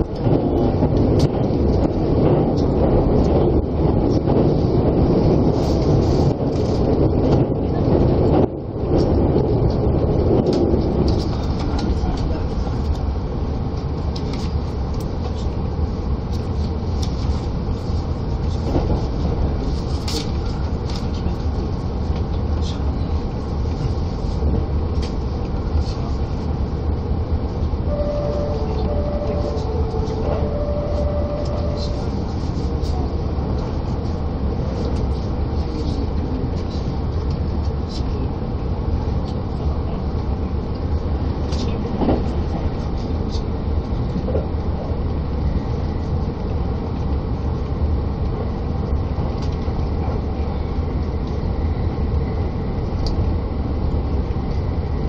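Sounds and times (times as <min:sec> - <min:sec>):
rail clicks: 0:00.0 - 0:13.1, 0:27.4 - 0:38.1
train running rumble: 0:00.0 - 0:55.0.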